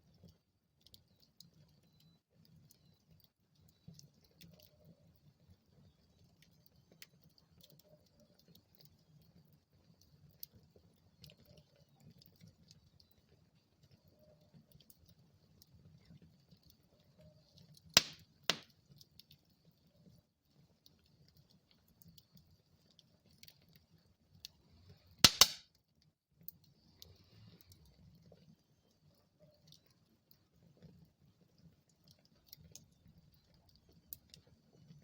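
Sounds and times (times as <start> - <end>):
wood fire crackling: 0.0 - 25.6, 26.4 - 35.0
burning wood popping: 17.8 - 19.1, 25.2 - 25.6.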